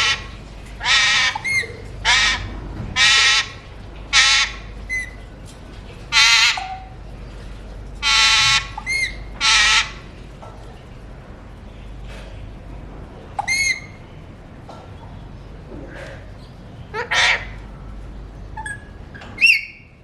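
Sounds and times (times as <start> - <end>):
parakeet harsh squawks: 0.0 - 5.2, 6.1 - 6.9, 8.0 - 10.0, 16.9 - 17.6.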